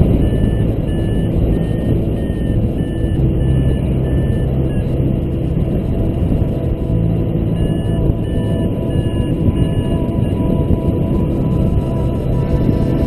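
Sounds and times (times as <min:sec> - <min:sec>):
wind rushing over microphone: 0:00.0 - 0:13.0
short high beeps: 0:00.2 - 0:05.0, 0:07.6 - 0:10.6.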